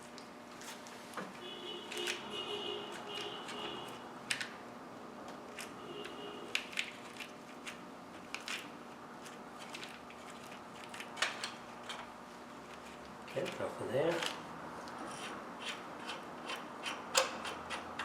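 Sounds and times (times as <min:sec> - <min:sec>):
hand tools clicking and knocking: 0:15.2 - 0:18.0.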